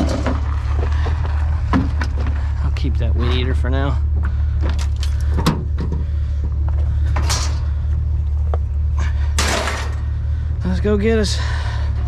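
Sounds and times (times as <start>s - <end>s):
knocks and clunks: 0.0s - 2.6s, 4.1s - 10.1s
vehicle engine idling: 0.0s - 12.0s.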